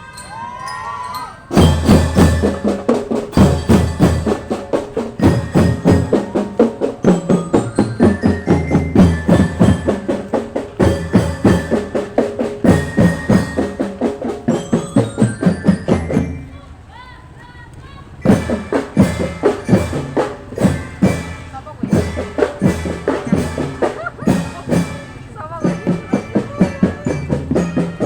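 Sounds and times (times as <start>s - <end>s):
mallet percussion melody: 0.0s - 16.9s, 18.1s - 28.0s
drums beating march rhythm: 1.5s - 28.0s
bass drum: 1.6s - 6.4s.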